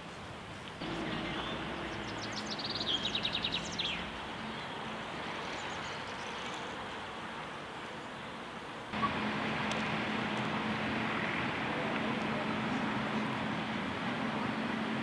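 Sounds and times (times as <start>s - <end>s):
songbird trill: 0.8s - 6.8s.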